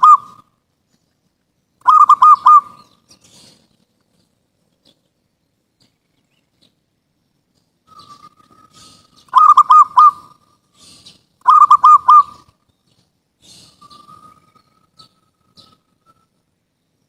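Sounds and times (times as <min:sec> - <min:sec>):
dove cooing: 0:00.0 - 0:00.5, 0:01.8 - 0:03.7, 0:07.9 - 0:12.5.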